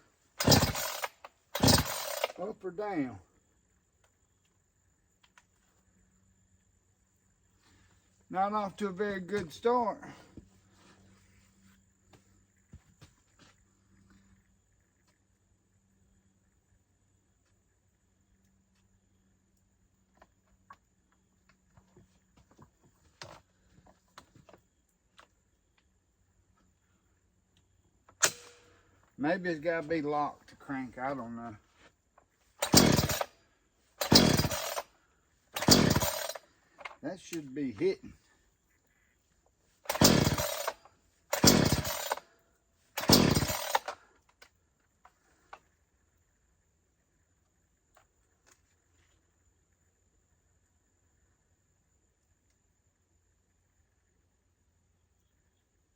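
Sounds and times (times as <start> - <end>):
clicks and taps of chainsaw controls: 0.4 - 2.5, 32.2 - 33.3, 34.0 - 34.8, 35.6 - 38.0, 39.9 - 42.2, 43.0 - 45.6.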